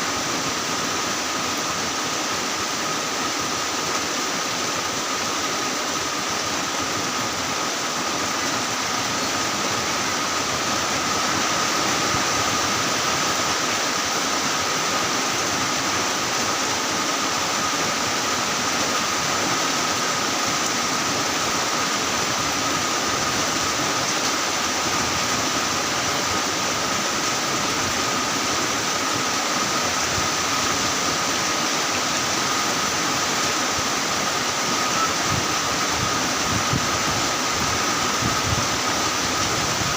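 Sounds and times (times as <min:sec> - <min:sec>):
heavy rain falling: 0:00.0 - 0:39.9
faint steady high tone: 0:34.5 - 0:36.3.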